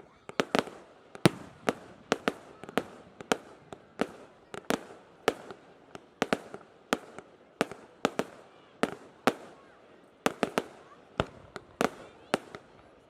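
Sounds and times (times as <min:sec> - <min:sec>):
fireworks bangs: 0:00.3 - 0:09.7.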